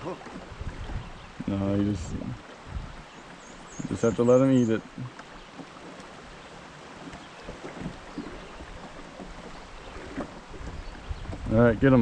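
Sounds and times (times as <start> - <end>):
wind on microphone: 0.0 - 4.2, 7.5 - 12.0
flowing river water: 0.0 - 12.0.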